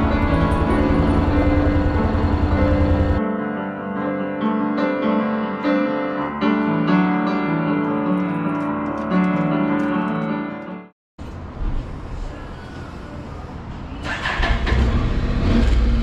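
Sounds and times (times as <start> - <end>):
piano music: 0.0 - 10.9.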